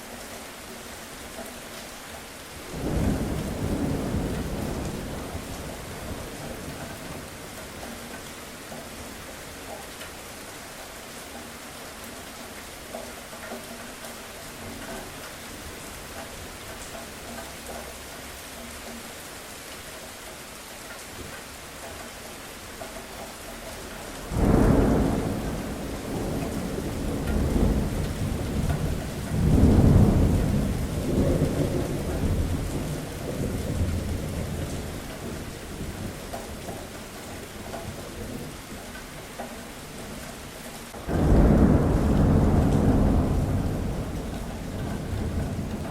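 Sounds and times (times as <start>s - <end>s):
steady rain: 0.0s - 45.9s
thunder rumbling: 2.7s - 7.4s, 24.1s - 36.8s, 40.9s - 45.9s.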